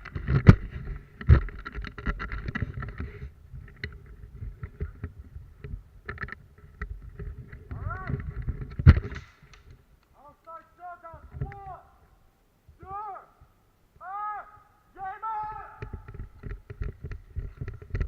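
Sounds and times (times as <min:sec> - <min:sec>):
low rumbling microphone noise: 0:00.0 - 0:10.0, 0:15.5 - 0:18.0
sharp clicks and knocks: 0:00.0 - 0:10.6, 0:15.7 - 0:18.0.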